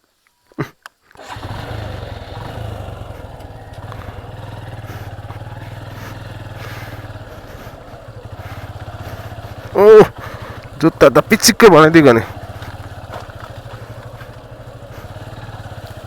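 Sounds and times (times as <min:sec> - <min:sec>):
clatter over rough track: 0:01.2 - 0:16.0
motorcycle engine running: 0:01.2 - 0:16.0.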